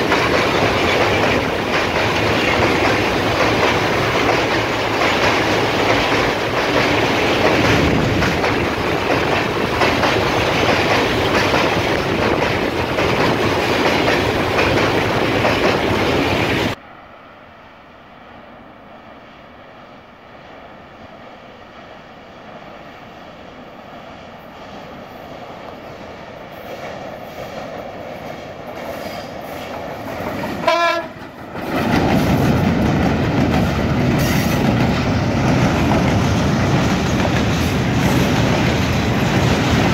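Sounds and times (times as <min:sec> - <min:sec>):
train rumbling in tunnel: 0:00.0 - 0:39.9
locomotive horn: 0:30.6 - 0:31.2.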